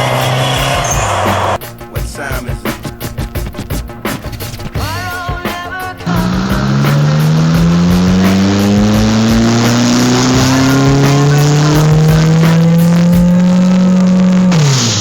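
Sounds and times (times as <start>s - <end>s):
car engine revving: 0.0s - 1.6s, 6.0s - 15.0s.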